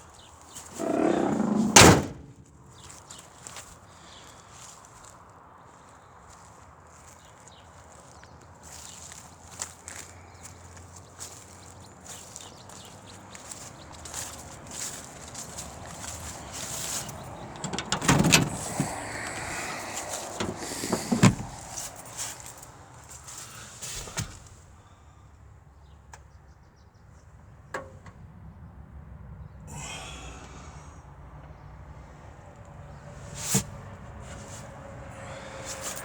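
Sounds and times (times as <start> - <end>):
short rustle: 13.5 - 24.6
knocks and thumps: 20.3 - 21.8.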